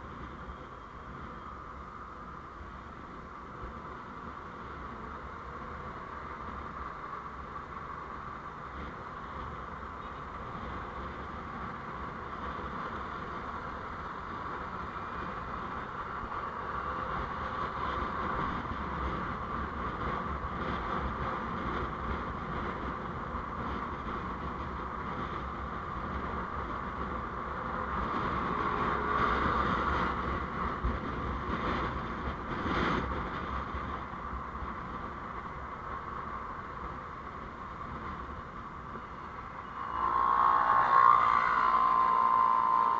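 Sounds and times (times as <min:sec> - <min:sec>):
vehicle road noise: 0:00.0 - 0:42.9
brief louder sound: 0:39.4 - 0:42.9.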